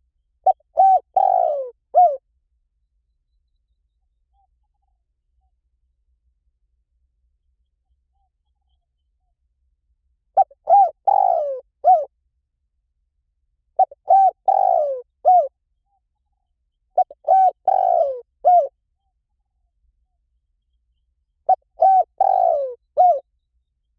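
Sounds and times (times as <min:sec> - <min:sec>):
dove cooing: 0:00.4 - 0:02.2, 0:10.4 - 0:12.1, 0:13.8 - 0:15.5, 0:17.0 - 0:18.8, 0:21.5 - 0:23.3.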